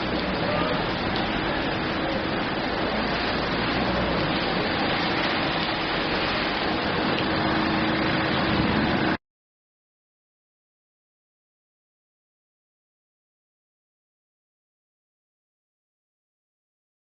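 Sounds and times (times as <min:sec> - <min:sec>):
steady rain hiss: 0:00.0 - 0:09.2.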